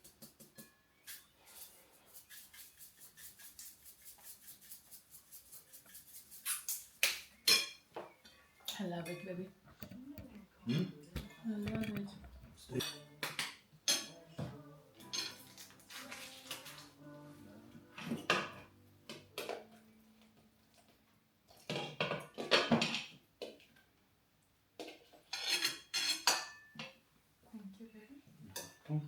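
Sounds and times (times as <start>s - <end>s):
cutlery clinking on plates: 0.1s - 1.2s, 7.5s - 7.8s, 11.0s - 14.2s, 15.0s - 16.8s, 18.0s - 19.7s, 21.6s - 23.1s, 24.8s - 27.0s, 28.6s - 28.9s.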